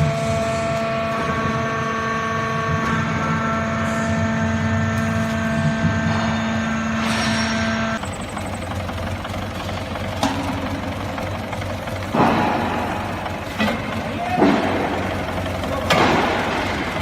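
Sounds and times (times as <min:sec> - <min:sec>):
baling press motor hum: 0:00.0 - 0:17.0
whining tones: 0:00.0 - 0:17.0.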